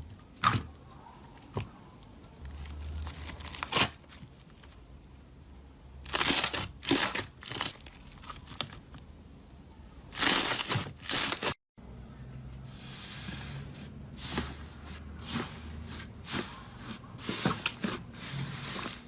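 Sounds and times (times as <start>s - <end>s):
crunchy slime crackling: 2.4s - 4.8s, 6.1s - 9.0s.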